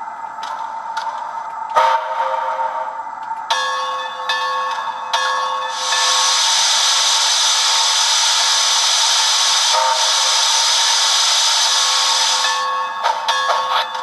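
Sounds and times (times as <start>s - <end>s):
model locomotive steam hiss: 5.7s - 12.8s.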